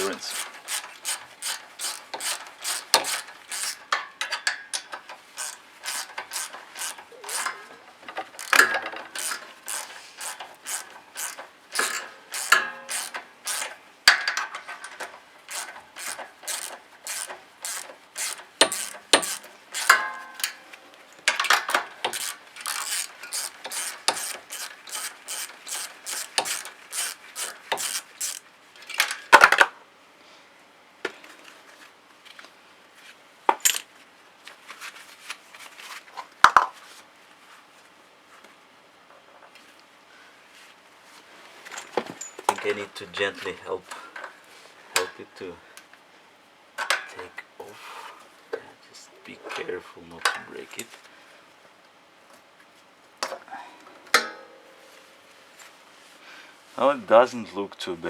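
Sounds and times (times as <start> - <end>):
ratchet wrench clicking: 0.0 - 4.0, 5.4 - 7.6, 8.3 - 13.8, 15.5 - 20.0, 22.0 - 28.4.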